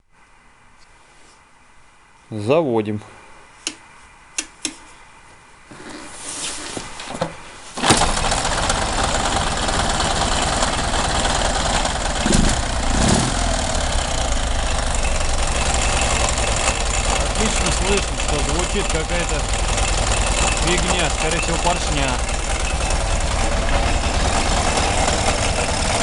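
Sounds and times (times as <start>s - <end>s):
motorcycle engine running: 7.9s - 26.0s.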